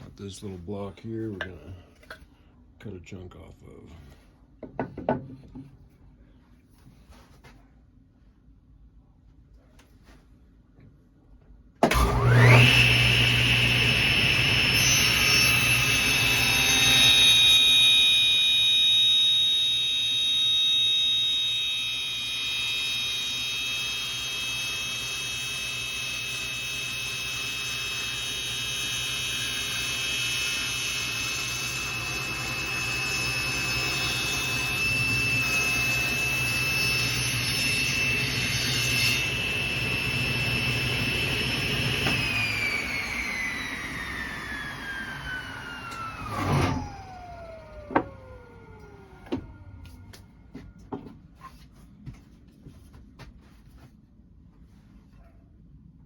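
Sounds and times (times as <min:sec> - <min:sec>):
electric power saw whine: 0:11.8 - 0:51.1.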